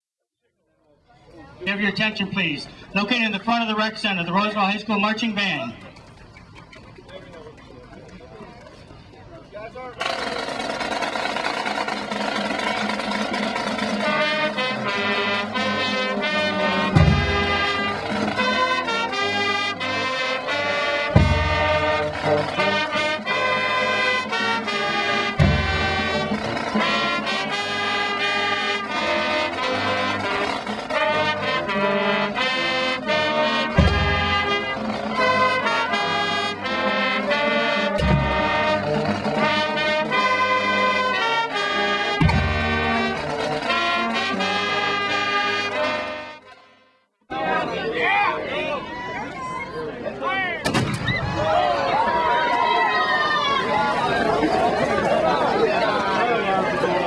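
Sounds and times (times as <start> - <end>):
marching band brass playing: 1.6 - 7.6, 10.0 - 47.5, 50.6 - 57.0.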